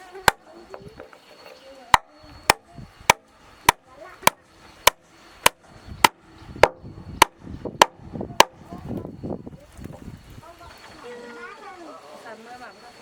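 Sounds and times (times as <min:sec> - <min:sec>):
hammer striking nails into wood: 0:00.2 - 0:01.1, 0:01.9 - 0:08.6.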